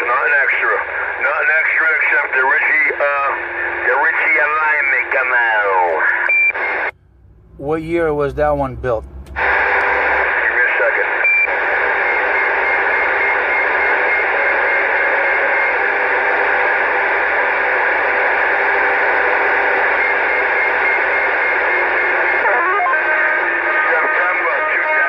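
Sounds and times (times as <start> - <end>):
radio static hiss: 0.0 - 6.9, 9.3 - 25.0.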